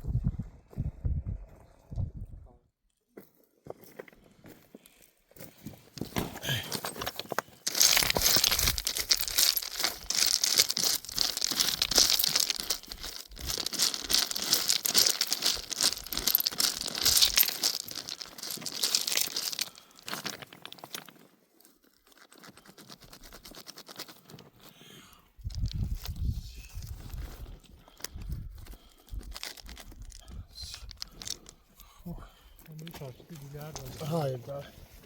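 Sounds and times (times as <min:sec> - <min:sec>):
crinkling and tearing rustle: 0:05.9 - 0:24.7, 0:25.4 - 0:31.7.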